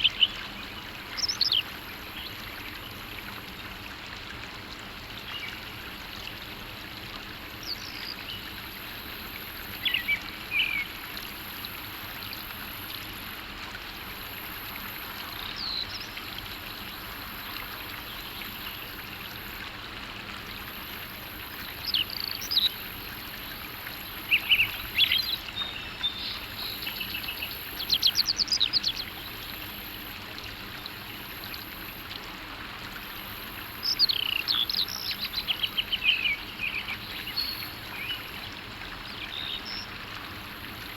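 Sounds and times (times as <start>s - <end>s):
flowing water rushing: 0.0s - 40.9s.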